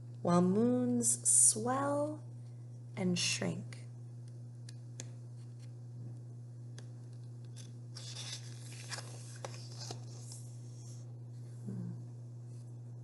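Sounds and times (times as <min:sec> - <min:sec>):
steady low hum: 0:00.0 - 0:13.0
book page rustling: 0:07.5 - 0:11.0.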